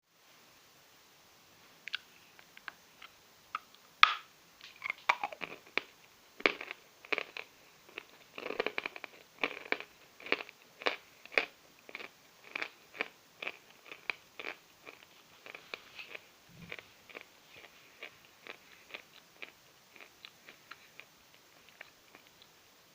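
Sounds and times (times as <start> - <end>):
chalk being chewed: 4.8 - 22.5.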